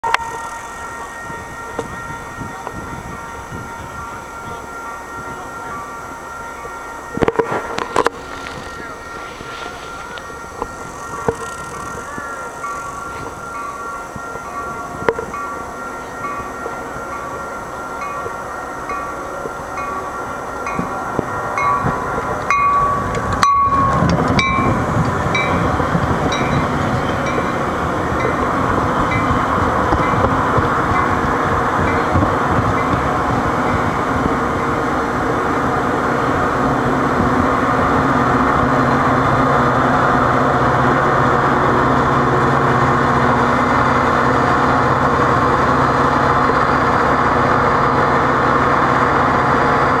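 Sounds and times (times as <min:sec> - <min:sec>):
crossing bell ringing: 0:00.0 - 0:50.0
train wheels rumbling on rail: 0:00.0 - 0:50.0.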